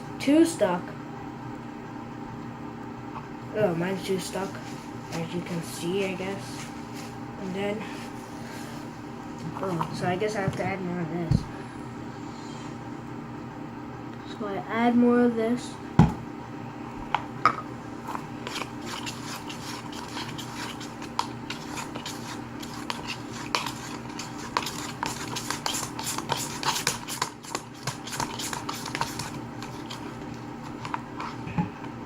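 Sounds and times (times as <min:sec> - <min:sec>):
steady hum: 0:00.0 - 0:32.0
slime clicking and scraping: 0:18.1 - 0:31.4.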